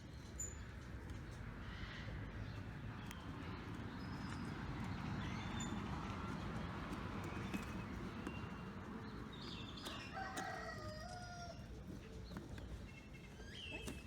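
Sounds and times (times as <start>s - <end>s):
rooster crowing: 9.8s - 11.6s.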